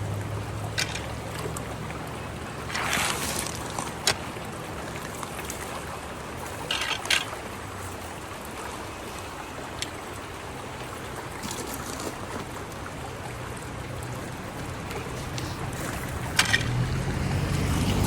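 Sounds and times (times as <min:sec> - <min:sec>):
water splash: 0:00.0 - 0:09.3, 0:14.0 - 0:18.0
water trickling through a culvert: 0:00.0 - 0:18.0.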